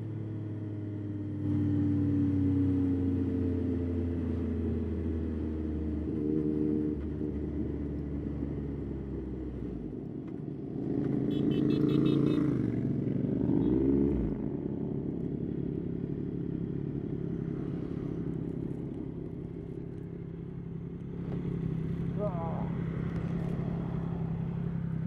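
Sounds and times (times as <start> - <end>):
motorcycle engine running: 10.6 - 13.8.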